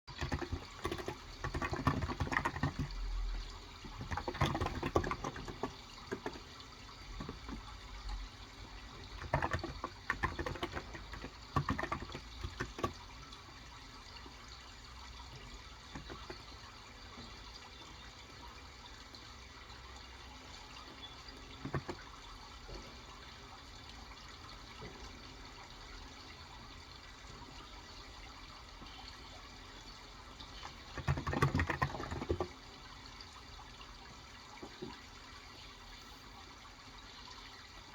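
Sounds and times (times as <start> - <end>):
running water: 0.1 - 37.9
taps and clicks: 3.8 - 6.5, 9.1 - 13.1, 16.0 - 16.5.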